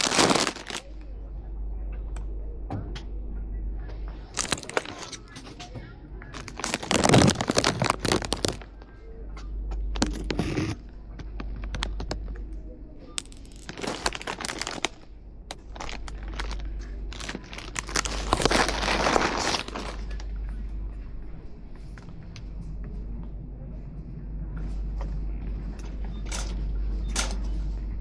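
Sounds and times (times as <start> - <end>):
rustling and crinkling handling: 0.0 - 1.1, 4.2 - 5.4, 6.3 - 9.0, 9.8 - 12.4, 13.2 - 20.7, 25.5 - 27.7
steady low hum: 0.0 - 28.0.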